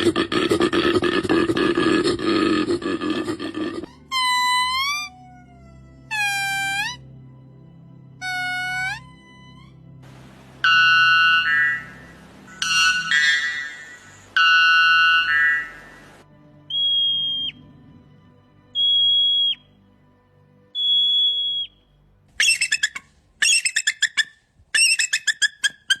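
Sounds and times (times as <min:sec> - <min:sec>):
buzzy animal call: 0:00.0 - 0:07.0, 0:08.2 - 0:19.6, 0:22.4 - 0:26.0
stuttering squawking calls: 0:08.2 - 0:18.2, 0:18.8 - 0:19.6, 0:22.4 - 0:26.0
high whistles dropping downward: 0:10.1 - 0:17.6, 0:18.8 - 0:19.7, 0:20.8 - 0:21.8.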